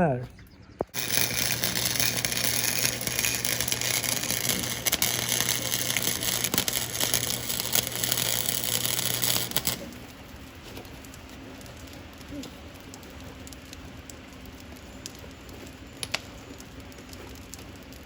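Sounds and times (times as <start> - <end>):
welder hum: 0.8 - 18.0
welding arc crackling: 0.8 - 18.0.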